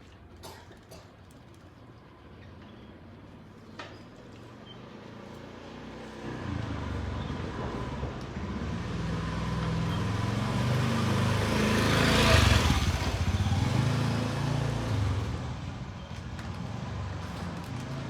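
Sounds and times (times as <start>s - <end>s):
vehicle engine passing by: 5.4s - 18.0s.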